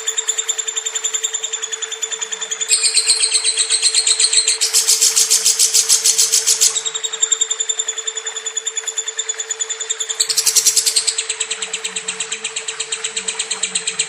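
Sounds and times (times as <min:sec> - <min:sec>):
lovebird chirping rapidly: 0:02.7 - 0:07.0, 0:10.1 - 0:11.3.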